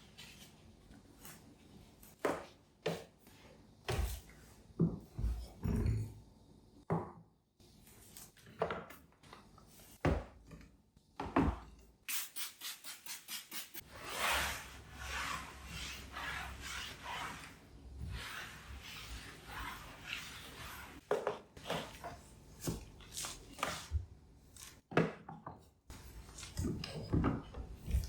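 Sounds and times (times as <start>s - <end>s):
scrubbing a surface: 12.2s - 21.0s.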